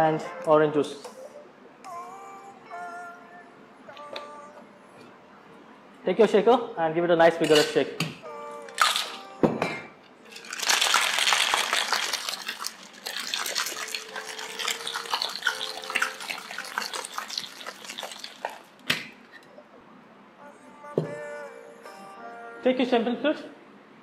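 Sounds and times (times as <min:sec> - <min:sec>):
ice rattling in cocktail shaker: 0:08.8 - 0:09.2, 0:10.3 - 0:18.8.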